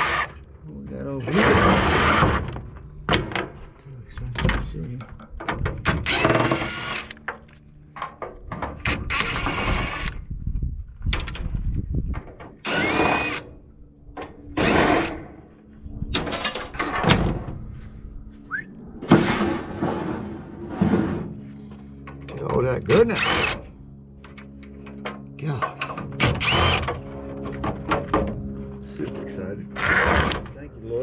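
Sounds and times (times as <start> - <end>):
cordless drill running: 6.0 - 7.2, 12.6 - 13.5, 23.2 - 23.7, 26.2 - 27.0.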